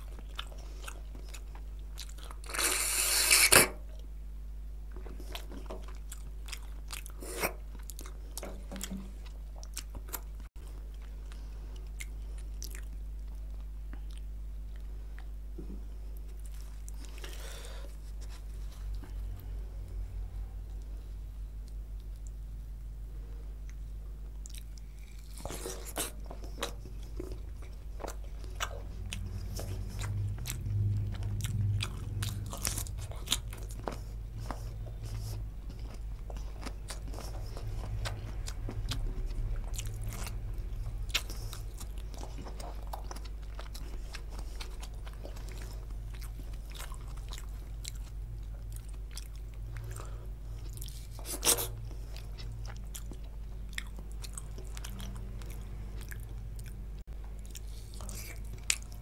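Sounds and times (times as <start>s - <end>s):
chewing and biting food: 0.0s - 4.1s, 4.9s - 19.4s, 24.4s - 59.0s
wet mouth sounds: 0.3s - 3.8s
food crunching: 24.4s - 59.0s.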